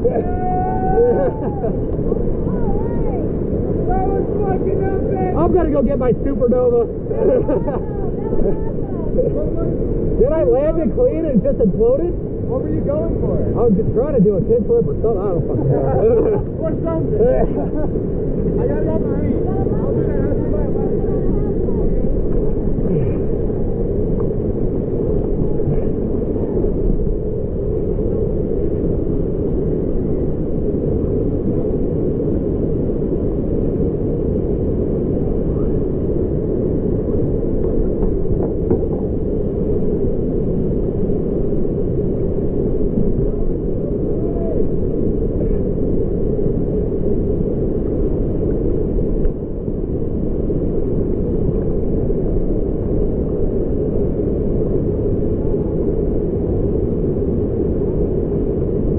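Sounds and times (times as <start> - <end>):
waterfall roar: 0.0 - 5.4.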